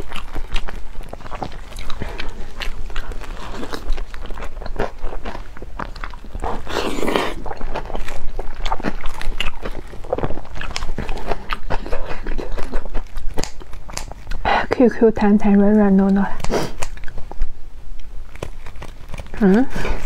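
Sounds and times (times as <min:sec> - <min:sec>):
wet mouth chewing clicks: 0:00.0 - 0:14.4, 0:15.5 - 0:20.0
wet slurping: 0:06.4 - 0:14.4.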